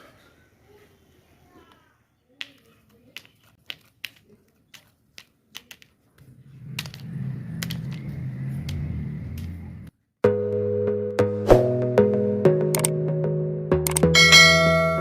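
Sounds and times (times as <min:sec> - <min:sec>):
small parts clicking: 0:02.4 - 0:09.5.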